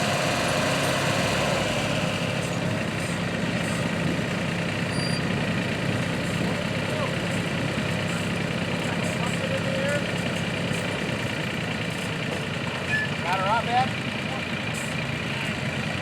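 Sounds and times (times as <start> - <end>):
engine running: 0.0 - 16.0
people talking: 6.4 - 10.1, 12.7 - 14.6.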